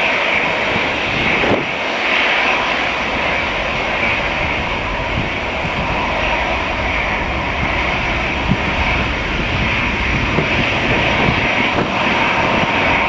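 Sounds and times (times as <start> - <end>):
airliner engines roaring: 0.0 - 13.0
wind gusts on microphone: 0.0 - 13.0.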